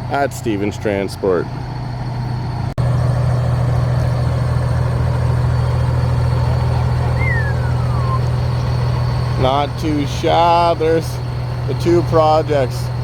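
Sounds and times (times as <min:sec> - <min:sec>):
diesel truck engine idling: 0:00.0 - 0:13.0
short falling whistle: 0:07.0 - 0:08.4.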